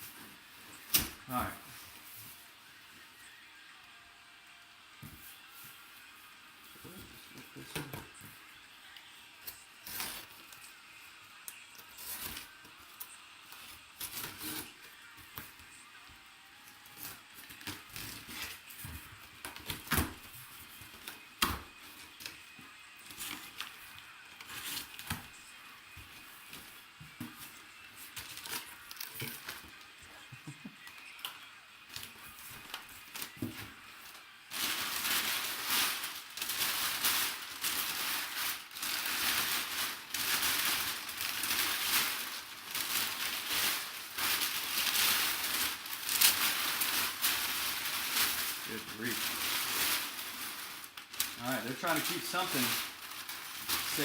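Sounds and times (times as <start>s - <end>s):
packing paper crinkling: 23.0s - 31.2s, 31.9s - 54.0s.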